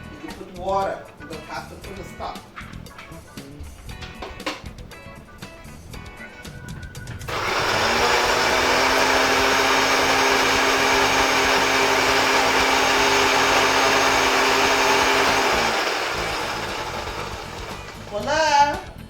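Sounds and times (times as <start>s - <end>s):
blender running: 7.3s - 18.4s.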